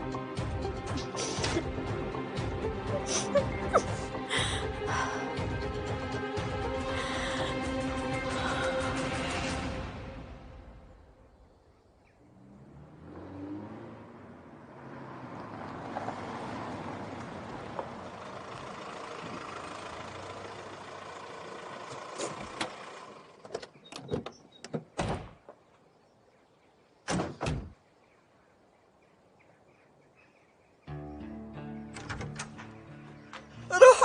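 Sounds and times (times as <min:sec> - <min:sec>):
vehicle engine running: 0:16.2 - 0:23.8
heavy car door shutting: 0:32.0 - 0:32.8.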